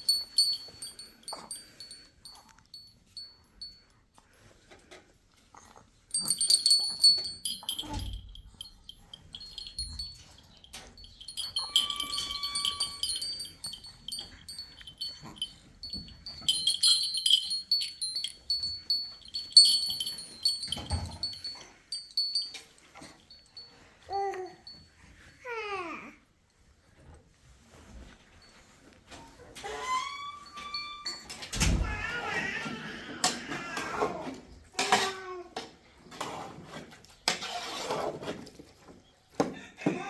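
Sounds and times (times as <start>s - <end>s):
small metal bells jingling: 0.0s - 3.8s, 6.1s - 23.8s, 30.4s - 31.5s.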